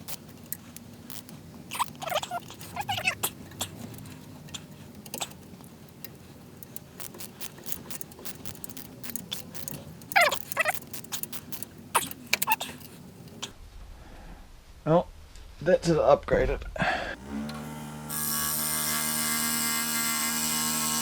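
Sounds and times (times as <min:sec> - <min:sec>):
metal parts and tools clinking: 0:00.0 - 0:13.4.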